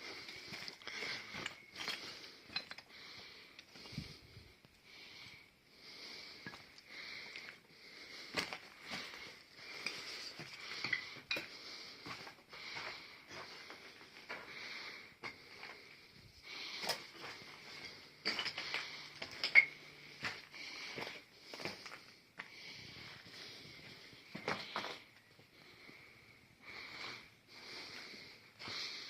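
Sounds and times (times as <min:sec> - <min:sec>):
debris clinking and knocking: 0:01.3 - 0:02.9, 0:09.8 - 0:11.5, 0:17.2 - 0:19.9.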